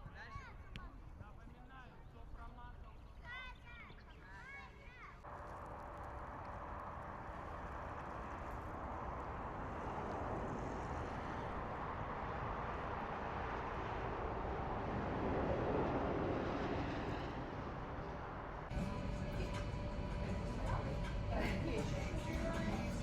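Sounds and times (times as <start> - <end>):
passing vehicle rumble: 5.3 - 23.0.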